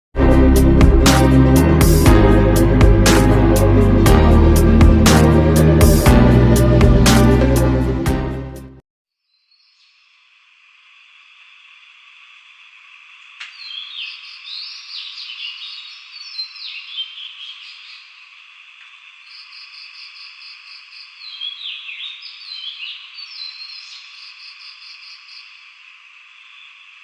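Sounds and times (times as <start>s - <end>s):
background wildlife chorus: 11.0s - 27.0s.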